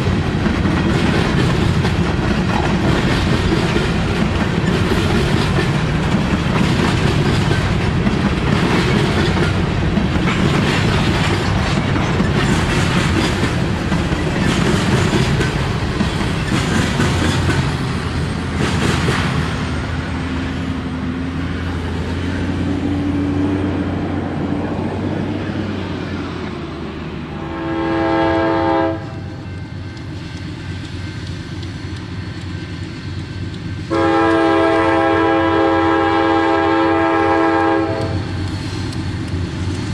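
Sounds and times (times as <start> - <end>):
freight train wheels clicking: 0.0 - 27.1, 28.8 - 39.9
locomotive air horn blast: 27.4 - 29.4, 33.9 - 38.3.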